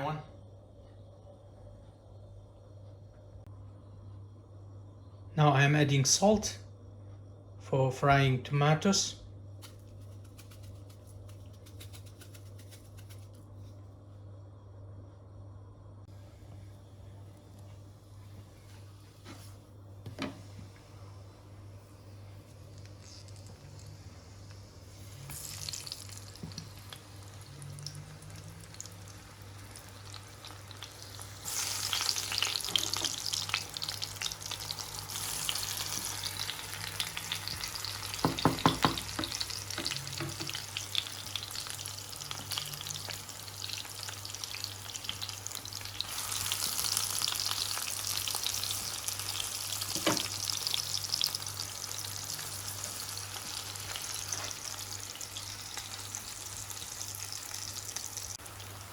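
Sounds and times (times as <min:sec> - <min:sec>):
vegetables sizzling in frying pan: 0:22.6 - 0:58.9
knocks against pan: 0:38.2 - 0:39.4.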